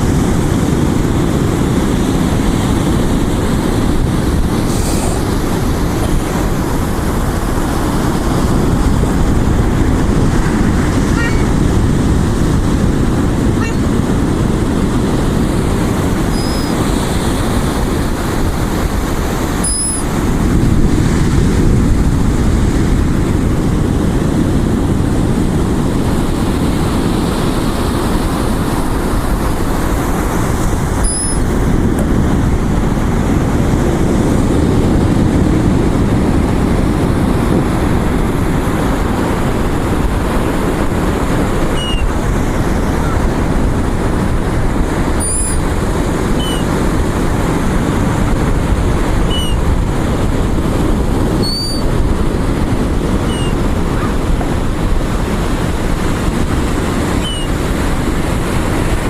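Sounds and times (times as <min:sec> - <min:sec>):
ocean surf: 0:00.0 - 0:59.0
wind: 0:00.0 - 0:59.0
high chirps: 0:16.3 - 0:16.8, 0:19.6 - 0:20.1, 0:31.0 - 0:31.5, 0:41.7 - 0:42.1, 0:45.2 - 0:45.6, 0:46.4 - 0:46.7, 0:49.3 - 0:49.6, 0:51.4 - 0:51.9, 0:53.3 - 0:53.6.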